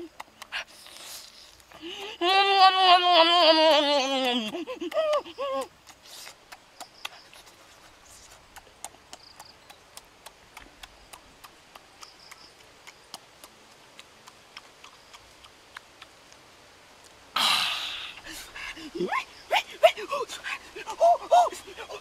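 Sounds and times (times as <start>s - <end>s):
person chewing with open mouth: 0.0s - 2.3s, 4.1s - 16.4s.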